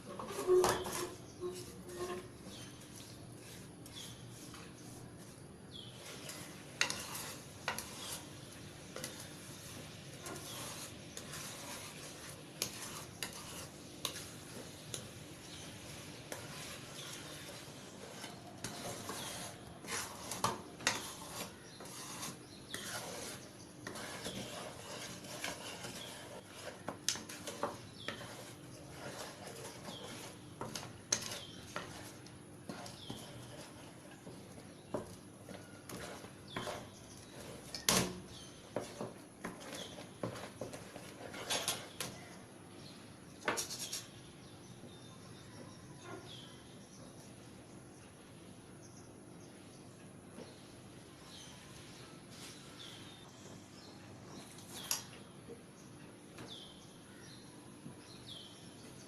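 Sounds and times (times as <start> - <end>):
spatula scraping in a pan: 0.0 - 42.5, 43.4 - 46.7.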